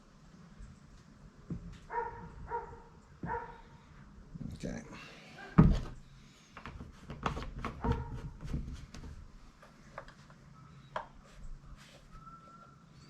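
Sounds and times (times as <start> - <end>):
faint whistle-like tone: 12.0 - 13.0.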